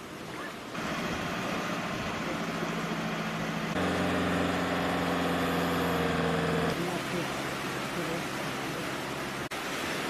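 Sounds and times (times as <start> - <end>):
vehicle engine running: 0.8 - 7.0.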